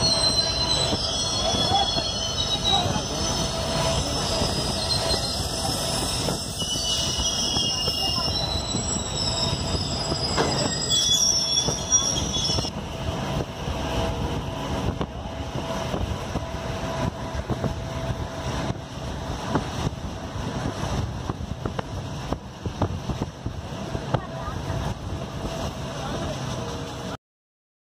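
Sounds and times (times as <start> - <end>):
high-pitched wheel squeal: 0.0 - 12.7
train rumble: 0.0 - 27.2.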